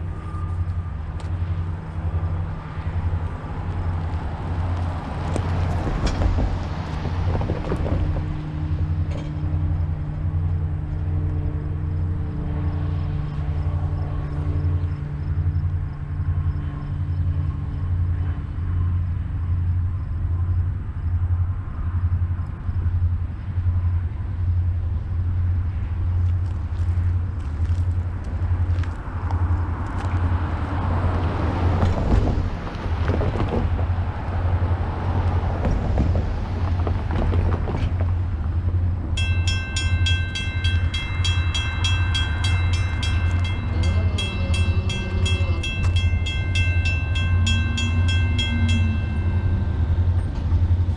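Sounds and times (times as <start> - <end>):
diesel locomotive rumble: 0.0 - 50.9
wheels clicking over rail joints: 0.6 - 10.6, 26.2 - 50.9
rapid high ringing bell: 39.2 - 50.0.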